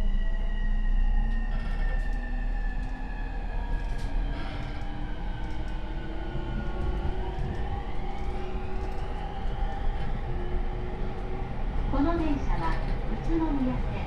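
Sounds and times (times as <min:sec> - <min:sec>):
train inverter and motor whine: 0:00.0 - 0:14.0.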